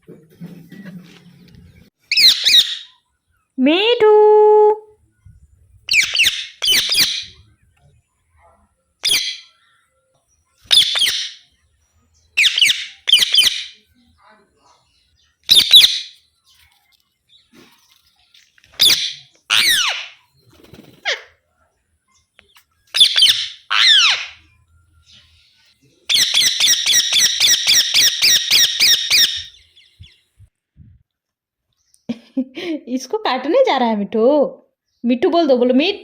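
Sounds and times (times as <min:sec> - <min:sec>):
parakeet calling: 0:02.1 - 0:03.0, 0:05.9 - 0:07.4, 0:09.0 - 0:09.6, 0:10.6 - 0:11.4, 0:12.4 - 0:13.8, 0:15.5 - 0:16.2, 0:18.8 - 0:20.2, 0:22.9 - 0:24.5, 0:26.1 - 0:30.2.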